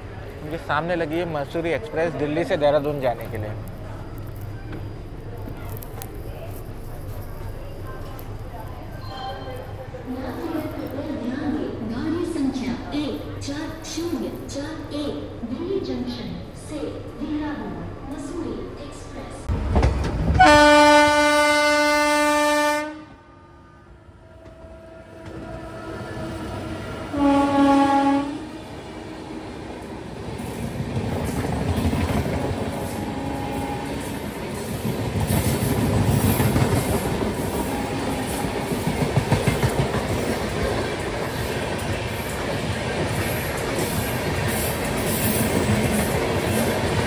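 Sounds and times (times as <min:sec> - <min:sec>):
moving train running noise: 0:00.0 - 0:21.5, 0:23.6 - 0:47.0
train horn blasts: 0:20.4 - 0:28.7, 0:32.8 - 0:34.1, 0:37.6 - 0:38.7.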